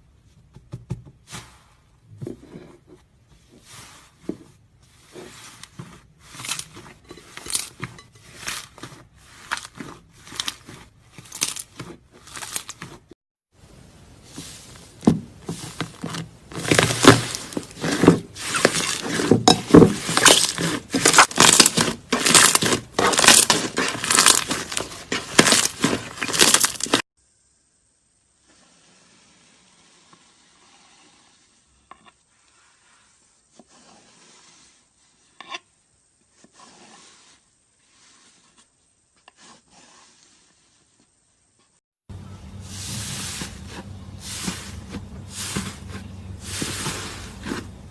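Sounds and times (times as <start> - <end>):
slime crackling and popping: 20.0 - 27.0.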